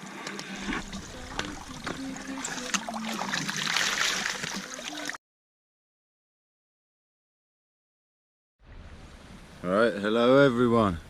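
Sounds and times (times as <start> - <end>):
river water splashing: 0.5 - 5.2.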